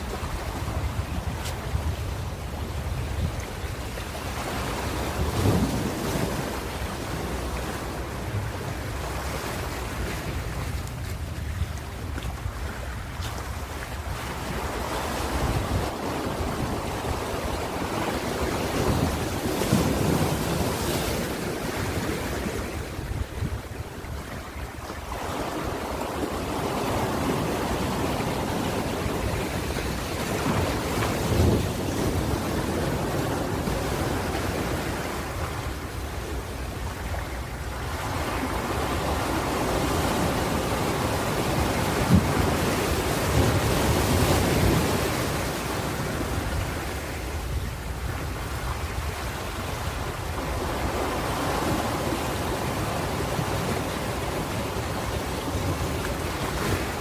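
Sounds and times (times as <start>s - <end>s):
ocean waves washing: 0.0s - 57.0s.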